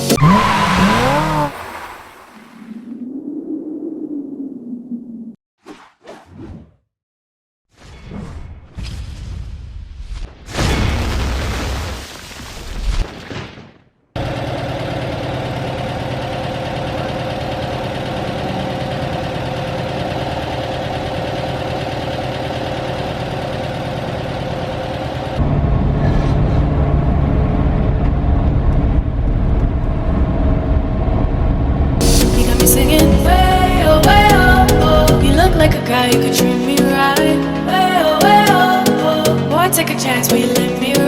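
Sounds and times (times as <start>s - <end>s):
vehicle engine drone: 0.0s - 2.4s, 14.2s - 36.0s
loud rushing noise: 32.0s - 35.8s.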